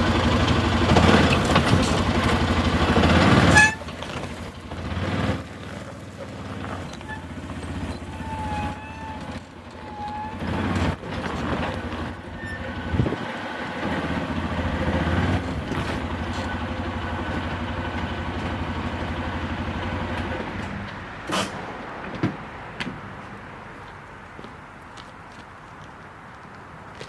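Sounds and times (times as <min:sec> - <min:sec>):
vehicle engine running: 0:00.0 - 0:21.3.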